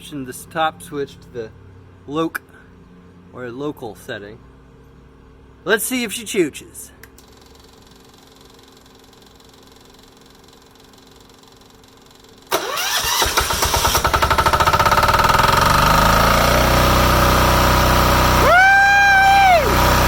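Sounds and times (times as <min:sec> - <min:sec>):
electric starter cranking: 0:12.4 - 0:20.0
diesel generator engine running: 0:12.5 - 0:20.0.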